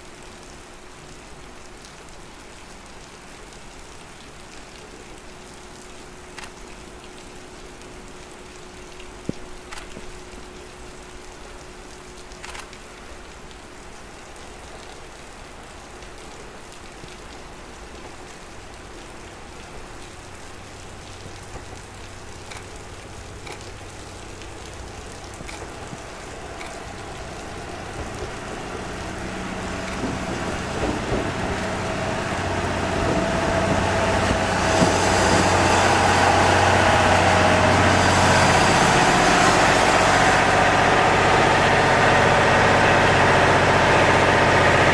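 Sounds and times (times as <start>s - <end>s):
diesel railcar engine: 17.4s - 44.9s.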